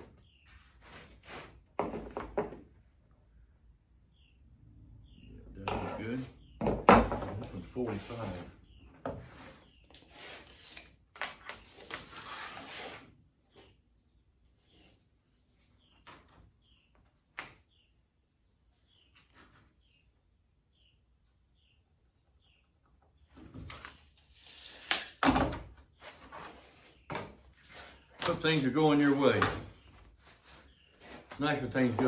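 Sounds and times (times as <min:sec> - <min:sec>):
rubbing and scraping: 0:00.0 - 0:02.4, 0:07.0 - 0:13.7, 0:23.4 - 0:25.2, 0:26.0 - 0:32.0.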